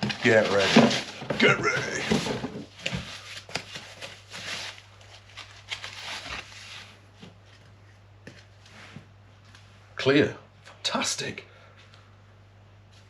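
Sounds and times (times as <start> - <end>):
packaging rustling: 0.0 - 7.0.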